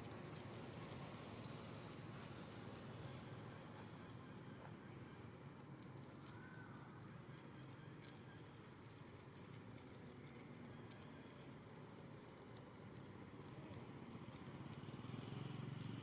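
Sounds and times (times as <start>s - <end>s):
thin high steady tone: 2.1s - 12.2s
small clicks: 9.4s - 11.9s, 12.5s - 16.0s.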